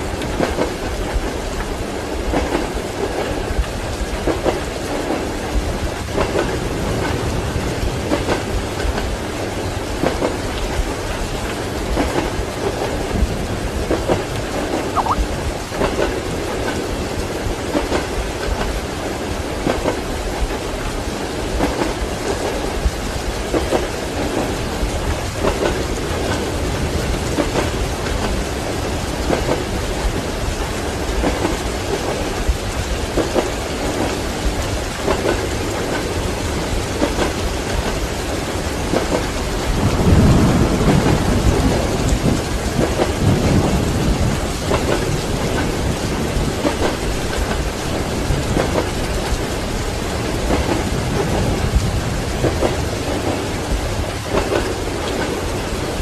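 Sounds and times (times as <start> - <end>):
heavy rain: 0.0 - 56.0
train wheels clattering on rails: 0.0 - 56.0
thunder rolling: 38.7 - 56.0.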